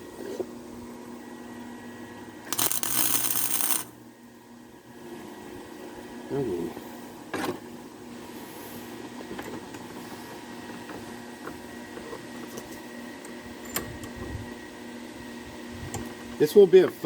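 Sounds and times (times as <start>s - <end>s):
welder electrical hum: 2.5s - 4.0s.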